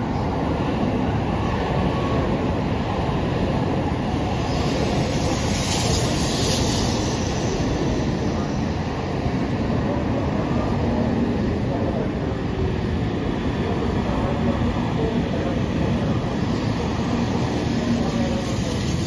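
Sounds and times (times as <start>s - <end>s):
train cars rumbling past: 0.0s - 19.0s
rush of air: 0.3s - 10.4s
high hiss: 4.1s - 9.6s.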